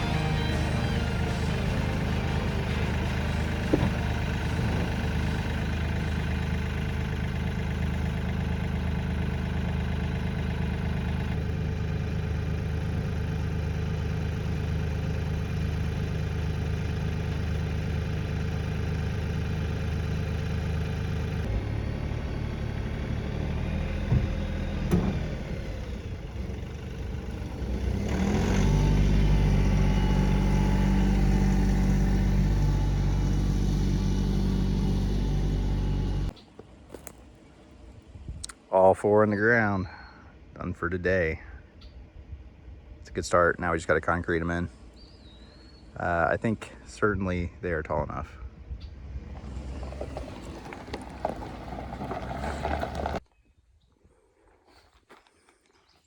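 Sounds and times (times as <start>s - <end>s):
tractor diesel engine running: 0.0s - 38.2s, 48.4s - 53.3s.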